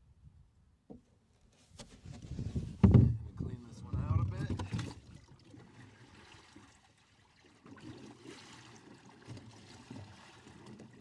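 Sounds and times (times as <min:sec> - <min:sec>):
water trickling and sloshing: 0:02.6 - 0:11.0.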